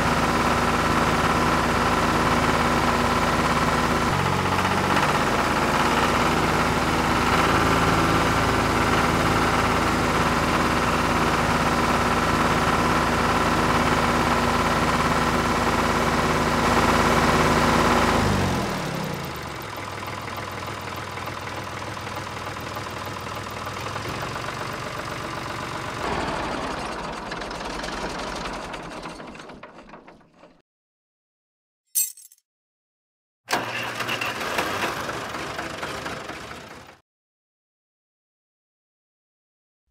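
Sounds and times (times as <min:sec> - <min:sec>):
tractor engine idling: 0:00.0 - 0:30.6.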